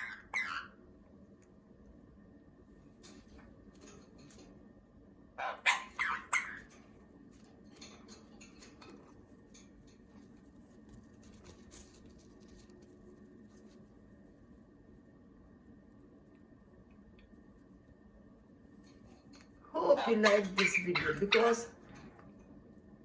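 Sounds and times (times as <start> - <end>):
parrot squawking: 0.0 - 0.8, 5.4 - 6.7, 19.8 - 21.7
low steady hum: 0.0 - 23.0.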